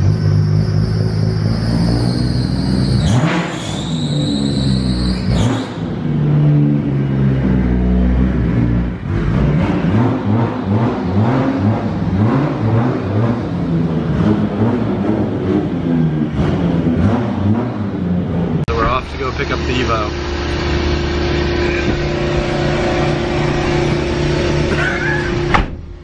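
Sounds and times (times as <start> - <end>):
car engine revving: 0.0 - 26.0
high whine: 18.7 - 26.0.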